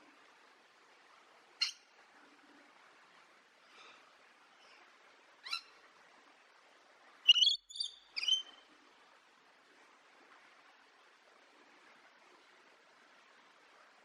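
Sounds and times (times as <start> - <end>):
parrot calling: 7.3 - 8.5.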